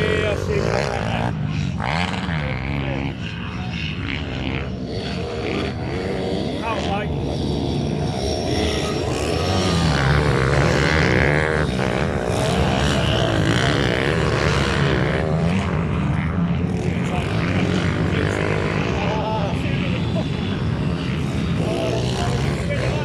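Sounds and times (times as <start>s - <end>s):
minibike engines revving: 0.0s - 23.0s.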